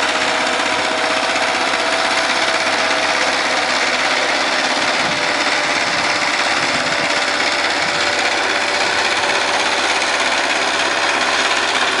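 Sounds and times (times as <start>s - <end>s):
power tiller engine running: 0.0s - 12.0s.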